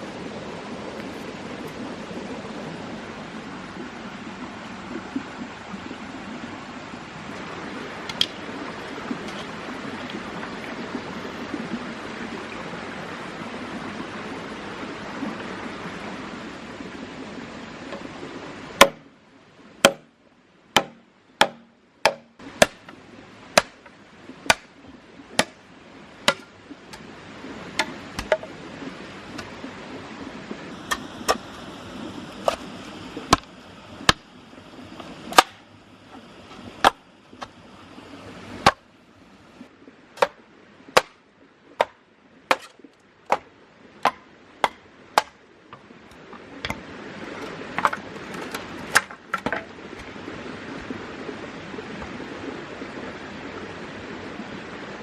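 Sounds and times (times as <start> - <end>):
bush knife chopping wood: 18.8 - 19.1, 19.8 - 20.1, 20.8 - 23.0, 23.6 - 24.8, 25.4 - 25.6, 26.3 - 26.5, 27.8 - 28.5, 33.3 - 33.5, 35.3 - 35.6, 36.8 - 37.5, 41.0 - 41.2, 41.8 - 46.8, 47.4 - 49.7.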